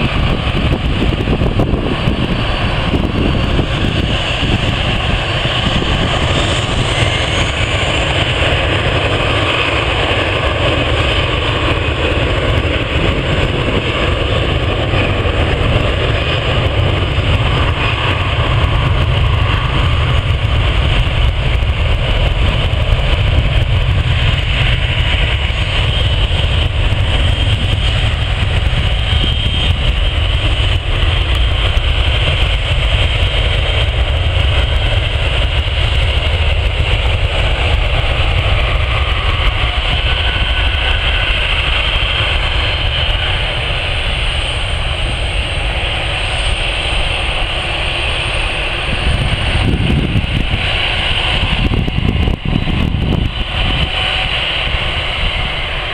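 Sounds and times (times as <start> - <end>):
jet engines rumbling and whining: 0.0 - 55.9.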